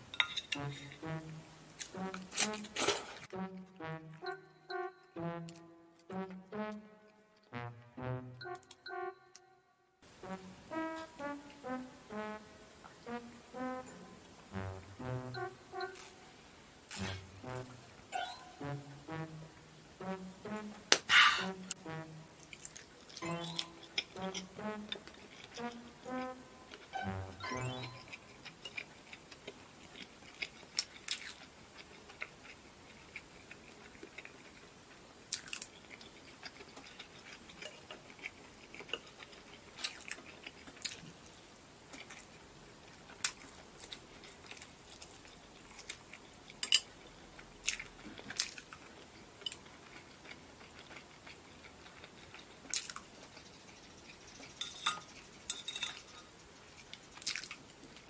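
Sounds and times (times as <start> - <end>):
chewing: 27.7 - 58.0.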